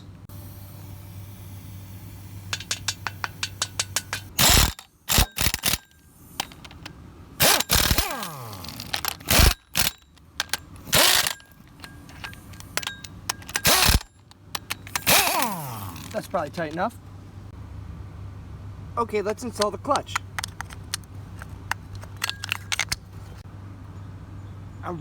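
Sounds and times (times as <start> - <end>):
ratchet wrench clicking: 2.5 - 16.8
power tool bursts: 4.4 - 5.8, 7.4 - 9.9, 10.8 - 11.4, 12.6 - 16.3.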